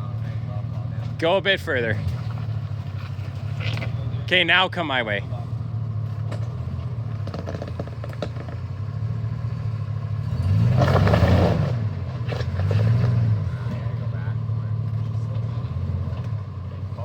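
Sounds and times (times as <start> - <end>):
off-road vehicle engine revving: 0.0 - 17.0
light knocks and clatter: 6.1 - 8.8.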